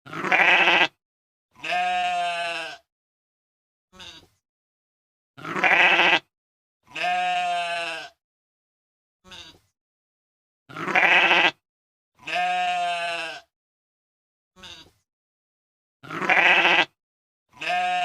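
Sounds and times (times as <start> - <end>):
cat making bleating calls: 0.1 - 0.9, 1.6 - 2.8, 4.0 - 4.3, 5.4 - 6.2, 6.9 - 8.2, 9.2 - 9.6, 10.7 - 11.6, 12.2 - 13.5, 14.6 - 15.0, 16.0 - 16.9, 17.6 - 18.0.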